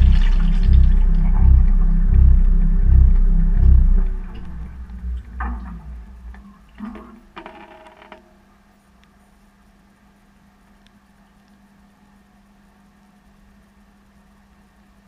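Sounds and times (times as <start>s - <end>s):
washing machine drum thumping: 0.0s - 5.8s.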